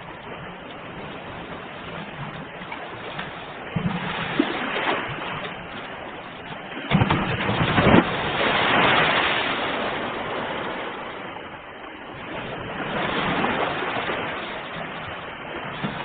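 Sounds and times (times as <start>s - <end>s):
ocean waves on shore: 0.0s - 16.0s
wave breaking: 0.0s - 16.0s.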